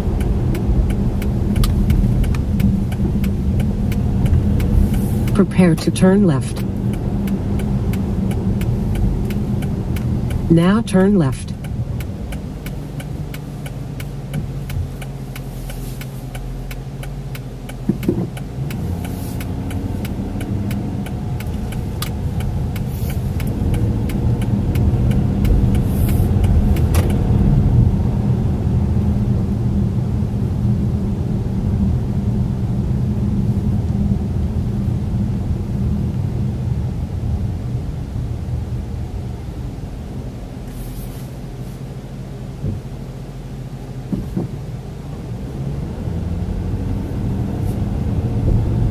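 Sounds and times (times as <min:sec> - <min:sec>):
turn signal relay ticking: 0:00.0 - 0:27.6
car engine: 0:00.0 - 0:48.9
road noise: 0:00.0 - 0:48.9.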